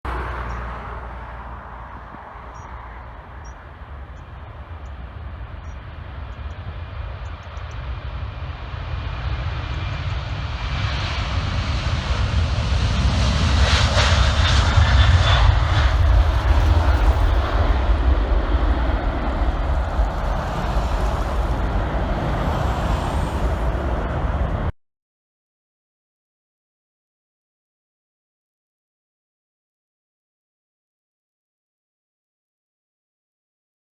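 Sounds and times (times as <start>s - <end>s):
jet engines taking off: 0.1s - 24.8s.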